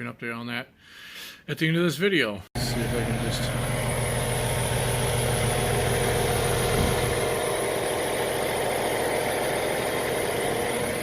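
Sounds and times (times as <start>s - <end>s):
diesel truck engine idling: 2.6s - 11.0s.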